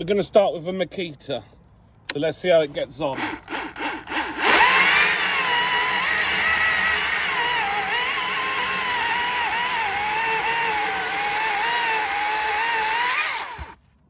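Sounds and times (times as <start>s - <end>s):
electric chainsaw cutting wood: 3.1s - 13.8s.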